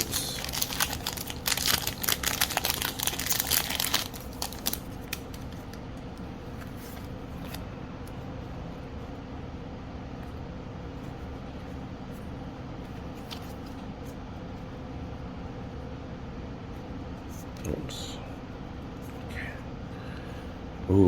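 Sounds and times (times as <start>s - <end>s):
foil wrapper crinkling and tearing: 0.0s - 5.8s
steady low hum: 0.0s - 21.0s.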